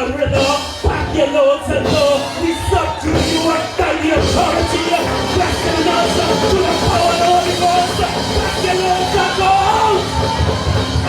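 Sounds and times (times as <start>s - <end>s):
drum kit: 0.0s - 11.0s
live church band music: 0.0s - 11.0s
voices singing: 0.0s - 11.0s.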